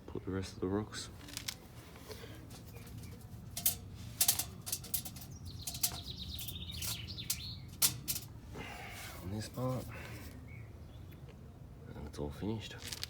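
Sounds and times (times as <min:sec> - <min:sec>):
low background hum: 0:00.0 - 0:12.1
songbird warbling: 0:05.2 - 0:07.8.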